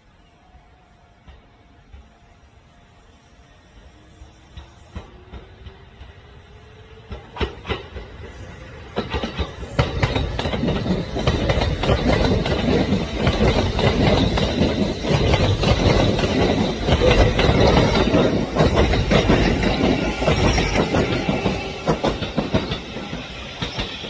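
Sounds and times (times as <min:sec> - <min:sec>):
train rumble: 0:00.0 - 0:24.0
train wheels clattering: 0:04.4 - 0:06.3, 0:07.0 - 0:24.0.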